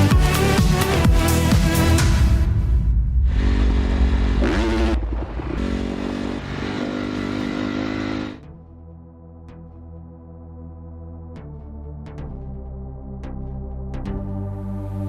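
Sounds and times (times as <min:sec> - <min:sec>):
background music: 0:00.0 - 0:05.0, 0:05.6 - 0:15.0
dirt bike engine revving: 0:03.2 - 0:08.4.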